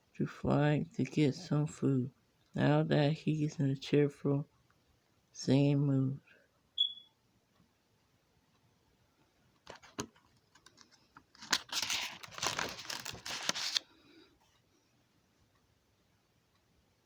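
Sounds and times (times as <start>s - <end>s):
crinkling and rustling: 9.6s - 14.6s.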